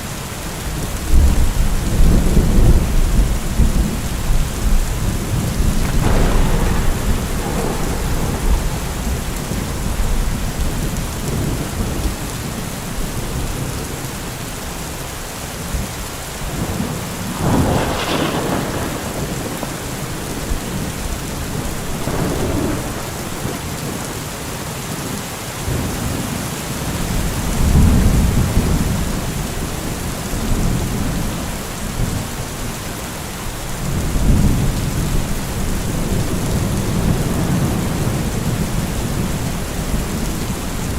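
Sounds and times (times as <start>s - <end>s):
heavy rain: 0.0s - 40.9s
rolling thunder: 1.1s - 13.7s, 16.4s - 24.2s, 33.7s - 40.9s.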